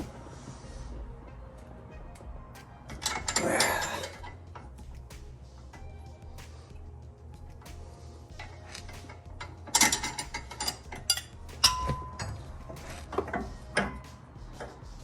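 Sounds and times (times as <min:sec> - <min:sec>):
metal tools clanking: 0:02.9 - 0:04.8, 0:08.4 - 0:14.7.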